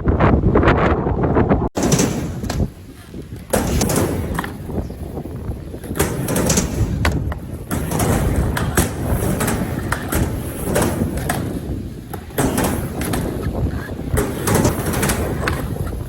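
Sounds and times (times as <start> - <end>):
skateboard wheels rolling: 0.0 - 16.0
wind buffeting microphone: 0.0 - 16.0
skateboard clacking on ramp: 5.8 - 16.0.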